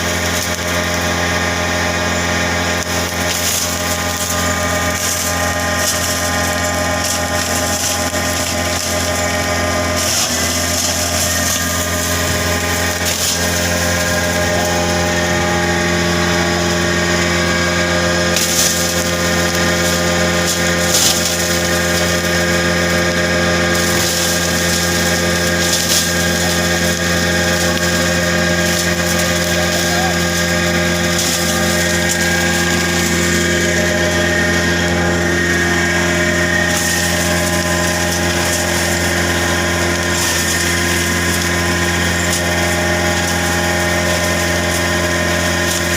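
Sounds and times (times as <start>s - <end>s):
wood chipper clattering: 0.0s - 45.9s
wood chipper humming and whining: 0.0s - 45.9s.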